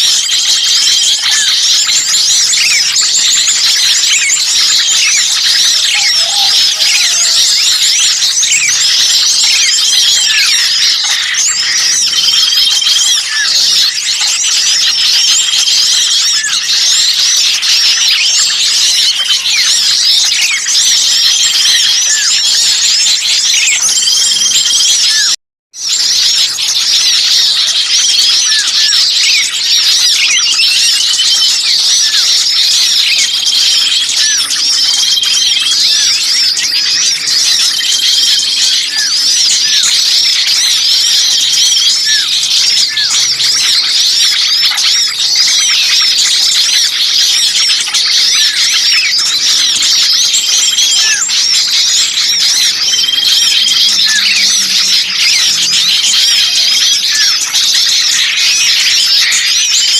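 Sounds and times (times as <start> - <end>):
songbirds chirping chorus: 0.0 - 59.9.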